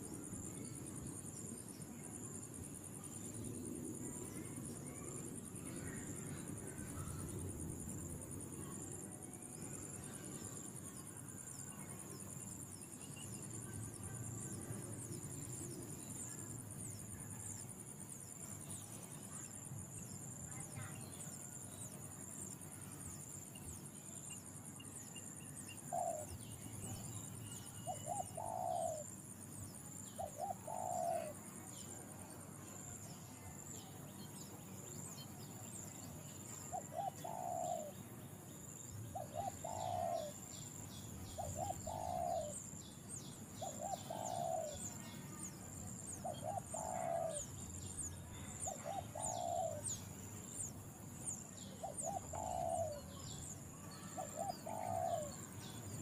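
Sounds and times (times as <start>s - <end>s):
bird hooting calls: 54.2s - 55.3s.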